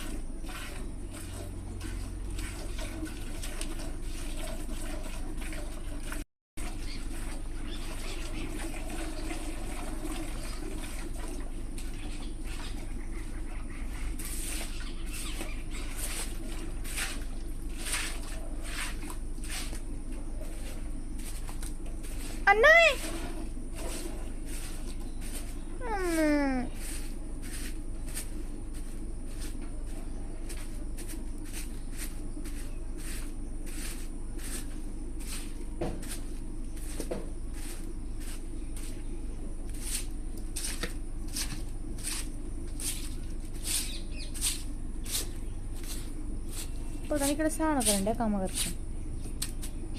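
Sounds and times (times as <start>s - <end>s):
milk streaming into a pail: 0.0s - 6.2s, 7.1s - 12.8s
low steady hum: 6.6s - 49.9s.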